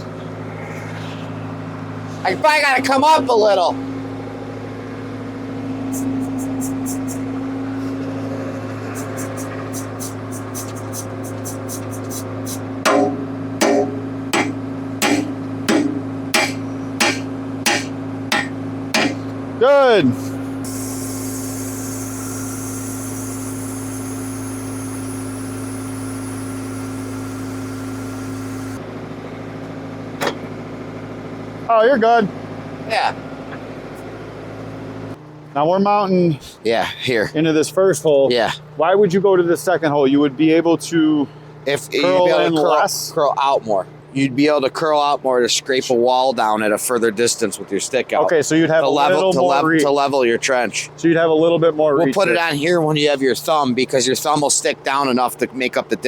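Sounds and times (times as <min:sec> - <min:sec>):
backhoe engine running: 0:00.0 - 0:35.5
high hiss: 0:08.8 - 0:12.6, 0:20.6 - 0:28.8.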